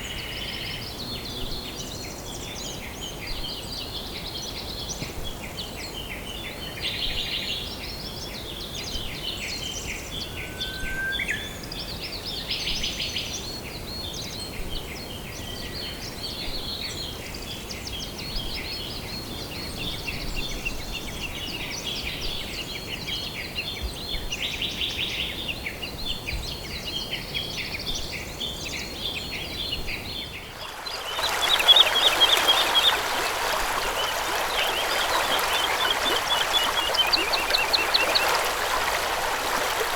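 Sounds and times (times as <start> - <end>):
stream rushing: 30.5 - 39.9
birds chirping and trilling: 30.6 - 39.8.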